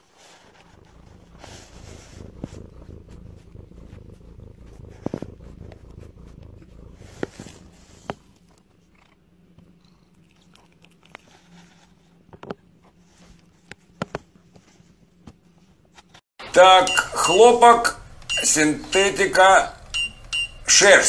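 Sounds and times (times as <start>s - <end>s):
cat purring: 0.0s - 15.9s.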